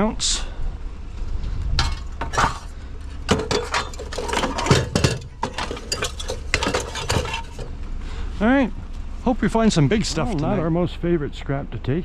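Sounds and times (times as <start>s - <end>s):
scrap metal clinking and clanking: 1.7s - 7.8s.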